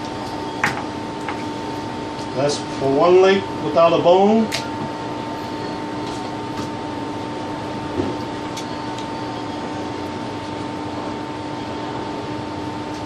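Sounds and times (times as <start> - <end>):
machine hum and hiss: 0.0 - 13.0.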